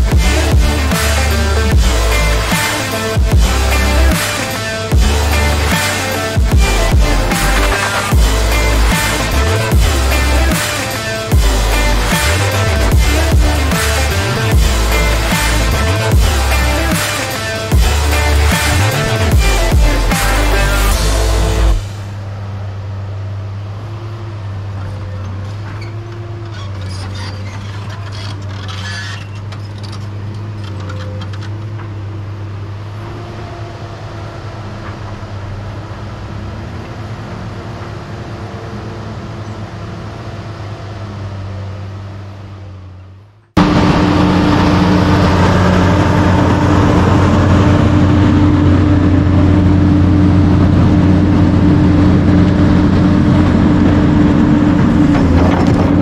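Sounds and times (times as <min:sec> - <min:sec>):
close diesel engine running: 0:00.0 - 0:56.0
heavy diesel machinery running: 0:00.0 - 0:56.0
clicks and clanks: 0:25.5 - 0:32.0.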